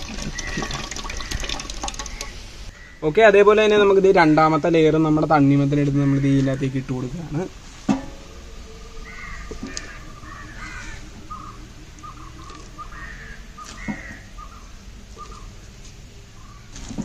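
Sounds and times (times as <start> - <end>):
birds calling harshly: 0.0 - 3.3, 8.2 - 16.8.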